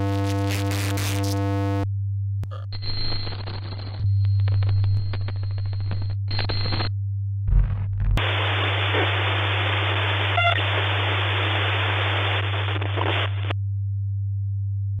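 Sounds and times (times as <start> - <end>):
glitch static crackling: 0.0 - 1.8, 2.5 - 6.9, 7.5 - 13.6
low thud: 7.5 - 8.2.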